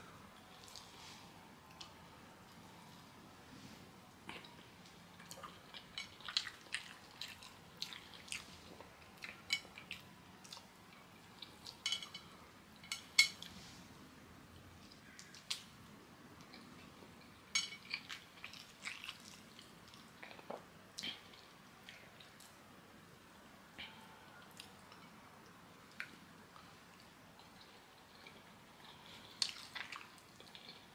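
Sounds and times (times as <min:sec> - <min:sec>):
person chewing with mouth smacks: 0:25.9 - 0:30.9.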